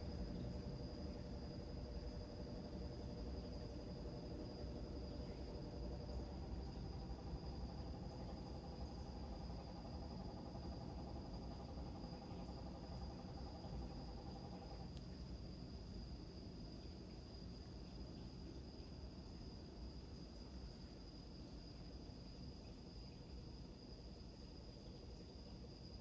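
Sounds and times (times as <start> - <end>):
crickets trilling: 0.0 - 26.0
low pulsed insect trill: 0.0 - 26.0.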